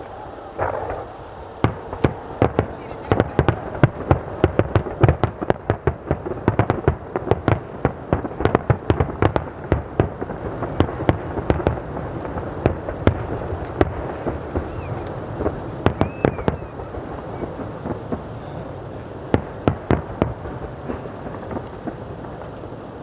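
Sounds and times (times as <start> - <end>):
fireworks crackling: 0.0 - 23.0.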